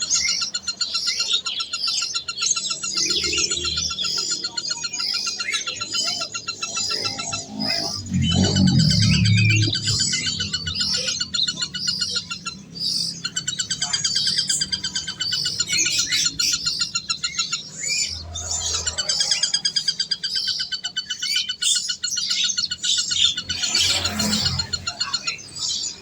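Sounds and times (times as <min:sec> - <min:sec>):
small birds chirping and trilling: 0:00.0 - 0:26.0.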